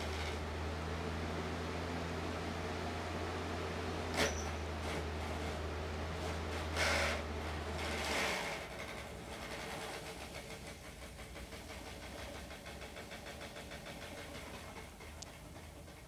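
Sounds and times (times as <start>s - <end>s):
electric fan whirring: 0.0s - 10.1s.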